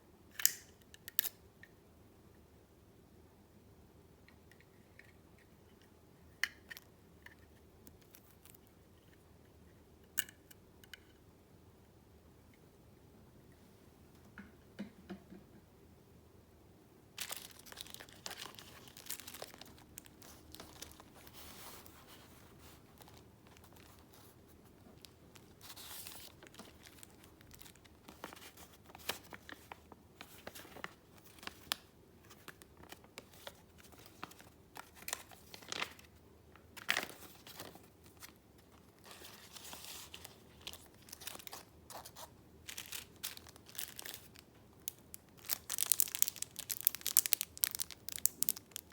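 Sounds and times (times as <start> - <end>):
paper rustling and crinkling: 17.2 - 36.1, 36.7 - 44.4, 45.4 - 48.9.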